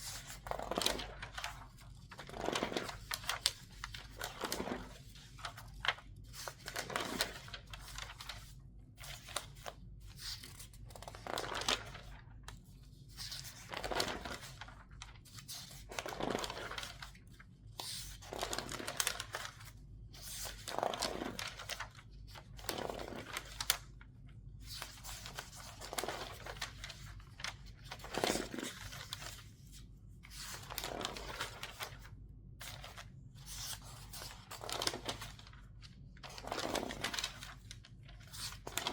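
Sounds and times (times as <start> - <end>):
newspaper pages rustling: 0.0 - 38.9.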